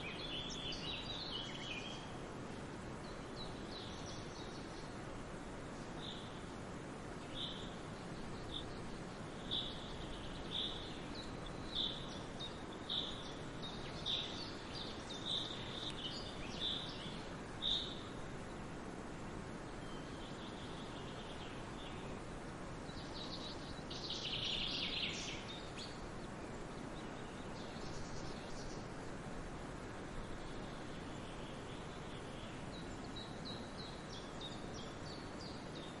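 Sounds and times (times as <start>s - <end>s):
songbird calling: 0.0s - 2.2s, 7.2s - 18.2s, 19.7s - 22.2s, 22.9s - 29.0s
steady background hiss: 0.0s - 36.0s
birds chirping: 3.0s - 18.7s.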